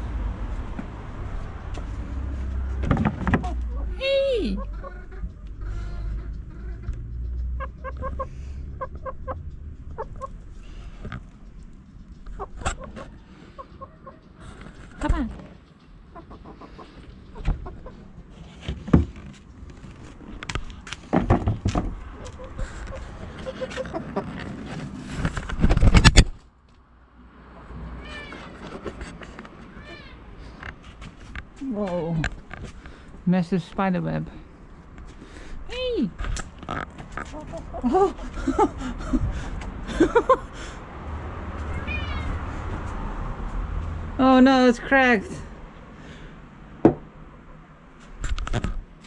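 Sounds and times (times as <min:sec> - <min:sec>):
knocks and rustling: 0:01.7 - 0:03.7, 0:18.4 - 0:26.5
high animal calls: 0:03.4 - 0:10.4
chickens clucking: 0:03.4 - 0:18.4, 0:21.9 - 0:24.6, 0:36.4 - 0:39.2.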